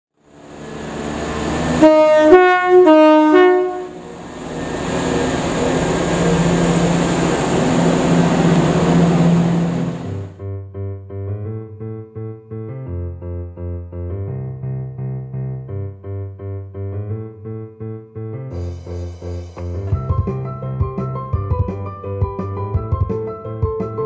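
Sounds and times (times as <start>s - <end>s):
train engine and wheels on rails: 0.2s - 10.4s
two-tone train horn: 0.6s - 7.2s.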